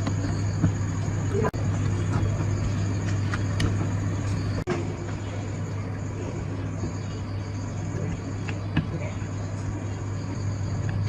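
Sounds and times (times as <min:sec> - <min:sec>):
minibike engine running: 0:00.0 - 0:11.0.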